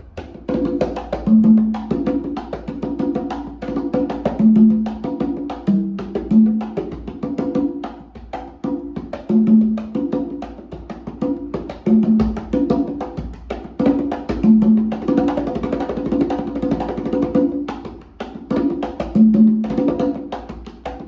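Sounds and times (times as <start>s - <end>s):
low ringing conga tone: 0.0s - 7.8s, 8.8s - 10.4s, 11.8s - 13.0s, 14.4s - 15.6s, 19.0s - 20.3s
conga played by hand: 0.0s - 21.0s.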